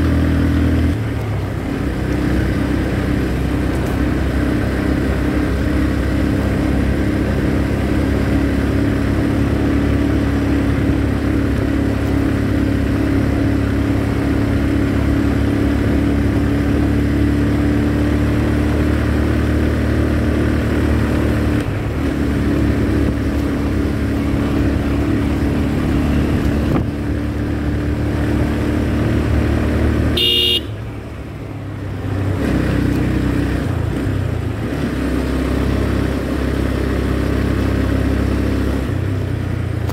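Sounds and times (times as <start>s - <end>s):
motorcycle engine running: 0.0s - 39.9s
road and wind noise: 0.0s - 39.9s
short horn beep: 30.2s - 30.8s.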